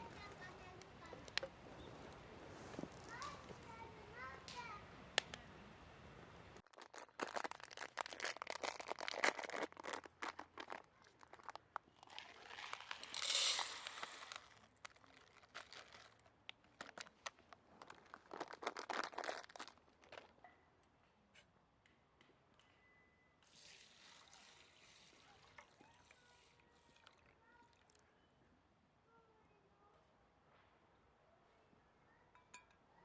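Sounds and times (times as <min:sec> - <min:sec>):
crinkling and clicking of handling: 0:00.0 - 0:03.8, 0:06.6 - 0:22.7.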